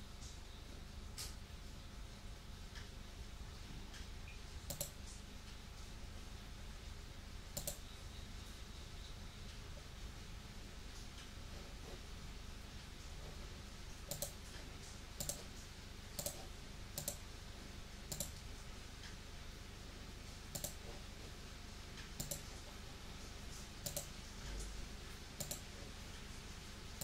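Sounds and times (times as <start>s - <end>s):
faint steady hiss: 0.0s - 27.0s
computer mouse clicking: 4.7s - 5.0s, 7.6s - 7.8s, 14.0s - 15.5s, 16.2s - 17.2s, 18.1s - 18.4s, 20.5s - 21.0s, 22.0s - 22.5s, 23.8s - 24.2s, 25.4s - 25.7s.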